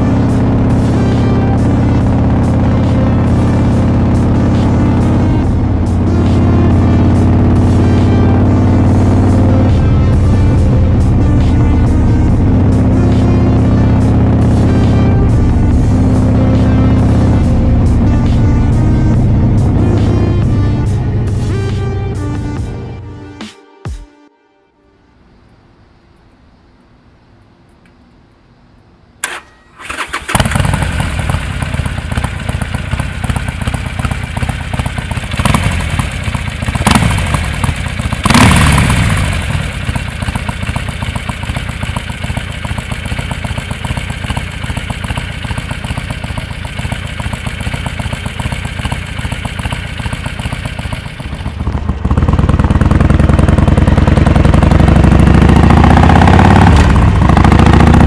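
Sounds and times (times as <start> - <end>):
motorcycle engine idling: 0.0 - 22.8, 29.2 - 58.0
click: 26.2 - 28.4.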